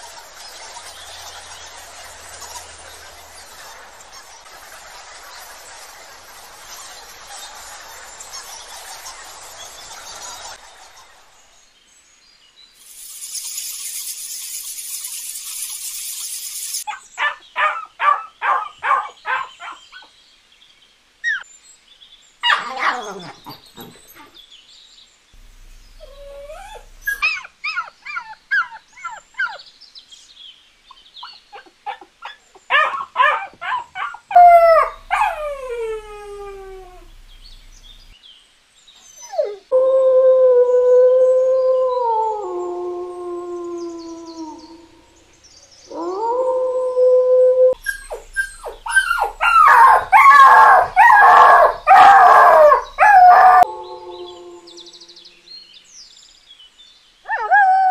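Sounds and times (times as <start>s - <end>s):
canines yipping and whining: 22.4s - 24.4s, 25.9s - 29.6s, 31.2s - 38.0s, 47.7s - 53.7s
canines howling: 32.7s - 37.3s, 45.9s - 55.4s, 57.3s - 57.9s.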